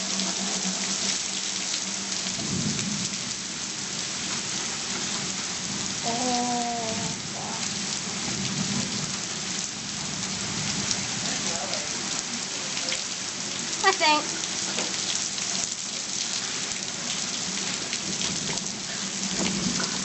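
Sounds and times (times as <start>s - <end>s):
heavy rain falling: 0.0s - 20.0s
thunder rumbling: 2.3s - 11.5s.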